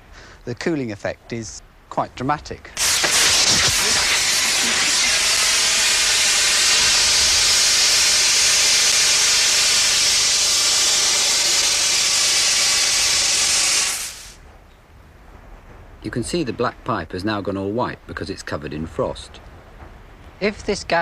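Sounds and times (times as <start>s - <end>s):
gas hissing from a valve: 2.8s - 14.4s.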